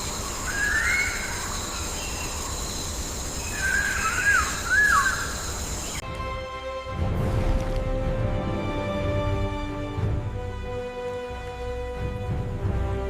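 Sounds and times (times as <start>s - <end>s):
whistled bird calls: 0.0s - 6.0s.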